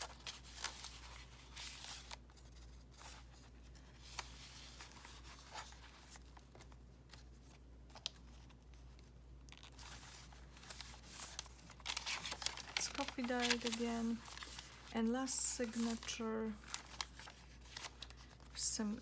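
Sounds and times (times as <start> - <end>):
low steady hum: 0.0 - 19.0
paper pages rustling: 0.0 - 19.0
soft paper clicks: 5.6 - 14.9.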